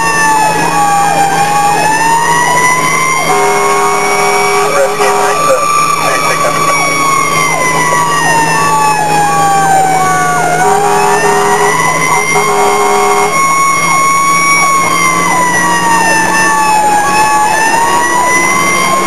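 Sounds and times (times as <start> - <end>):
engine humming: 0.0 - 19.0
faster repeating siren: 0.0 - 19.0
fire engine siren wailing: 0.0 - 19.0
horn blasts: 3.2 - 5.7, 10.6 - 13.6.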